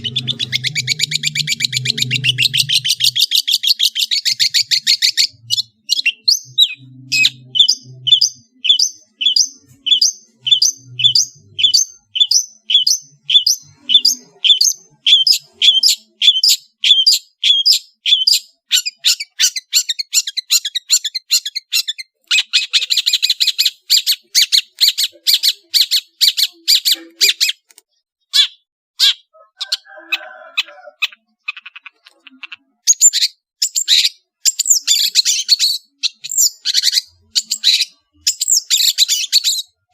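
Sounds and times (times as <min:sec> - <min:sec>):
bird singing sharp notes: 0:00.0 - 0:19.6
bird harsh chattering: 0:00.0 - 0:39.9.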